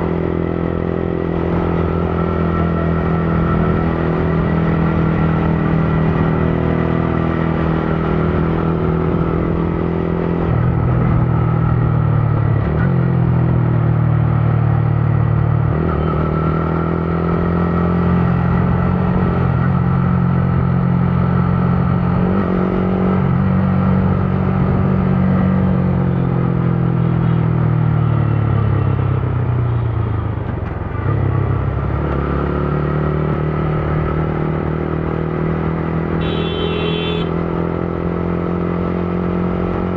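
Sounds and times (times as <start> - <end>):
motorcycle engine running: 33.3 - 39.2.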